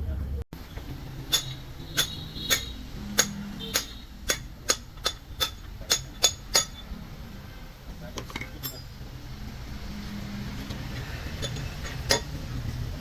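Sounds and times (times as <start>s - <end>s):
hammer tapping on metal: 0.8s - 6.9s.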